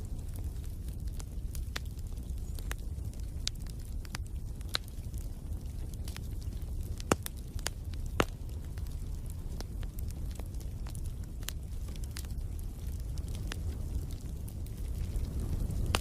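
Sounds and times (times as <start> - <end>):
fire popping: 0.0 - 16.0
wood fire crackling: 0.0 - 16.0.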